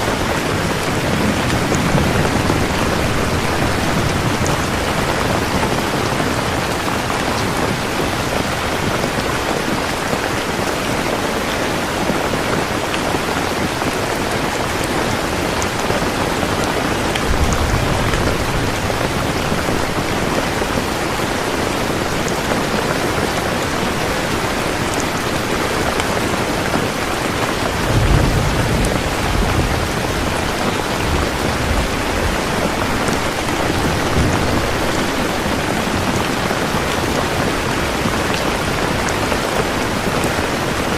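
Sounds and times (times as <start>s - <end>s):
steady rain falling: 0.0s - 40.9s
low rumbles of thunder: 16.3s - 20.4s, 27.7s - 35.4s.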